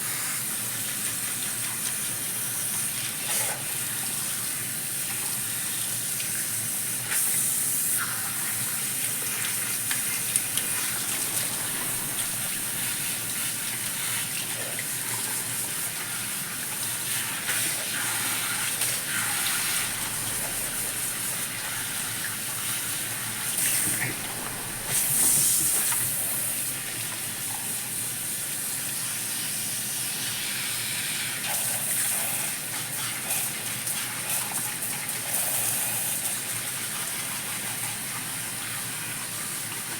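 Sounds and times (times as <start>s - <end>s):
shower head spraying water: 9.8s - 14.2s, 17.4s - 27.8s.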